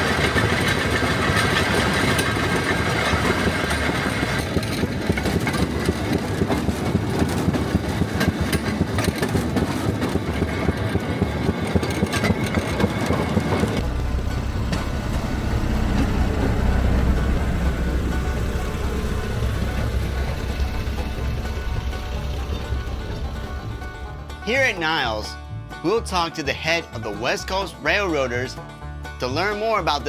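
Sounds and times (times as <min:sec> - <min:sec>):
rail motor car engine running: 0:00.0 - 0:30.0.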